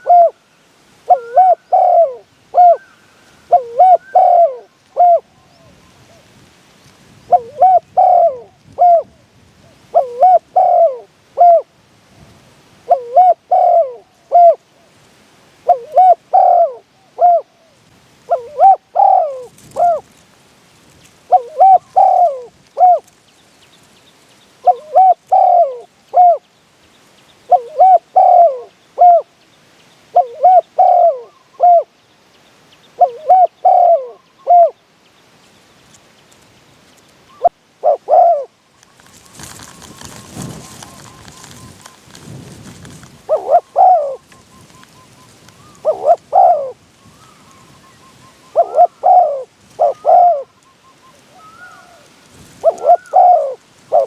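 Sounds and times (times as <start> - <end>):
dove cooing: 0.0 - 0.4, 1.1 - 2.9, 3.5 - 6.3, 7.3 - 9.2, 9.9 - 11.7, 12.8 - 14.6, 15.6 - 20.2, 21.3 - 23.2, 24.6 - 26.4, 27.5 - 29.3, 30.1 - 31.9, 33.0 - 34.8, 37.3 - 42.2, 42.8 - 54.0.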